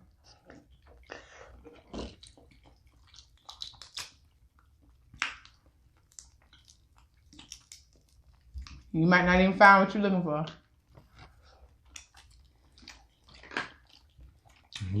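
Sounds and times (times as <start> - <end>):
wet chewing and lip smacks: 0.3 - 8.9, 10.5 - 15.0
crab shell cracking: 3.1 - 4.2, 5.2 - 8.2.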